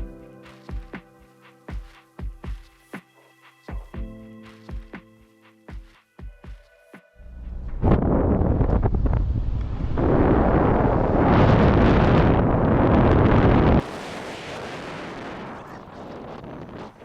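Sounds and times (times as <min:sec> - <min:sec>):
wind buffeting microphone: 0:07.4 - 0:17.0.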